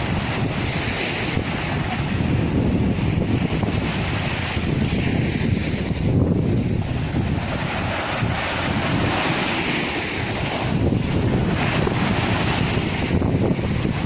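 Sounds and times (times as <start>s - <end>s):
sea waves washing in: 0.0s - 14.0s
wind buffeting microphone: 0.0s - 14.0s.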